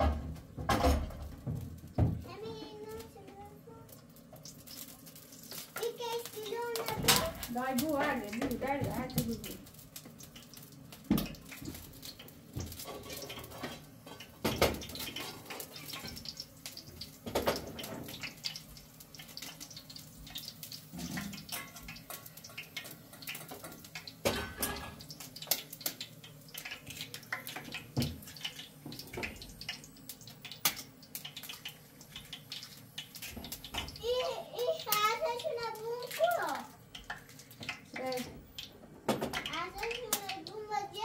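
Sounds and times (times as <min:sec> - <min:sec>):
water splashing and running: 0:24.8 - 0:38.6.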